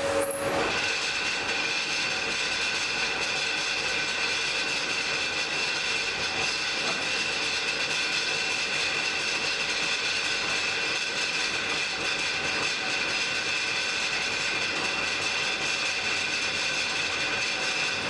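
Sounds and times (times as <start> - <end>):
high whine: 0.0 - 0.9.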